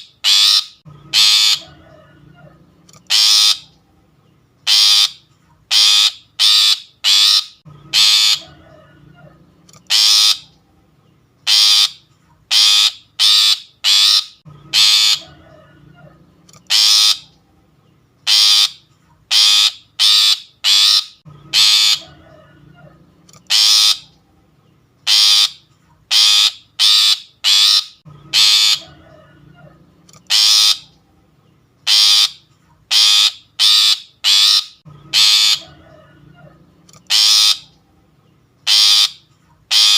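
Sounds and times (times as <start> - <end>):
shrike harsh rasping calls: 0.0 - 3.9, 4.6 - 10.7, 11.4 - 17.5, 18.2 - 24.3, 25.0 - 31.1, 31.8 - 37.9, 38.6 - 39.9.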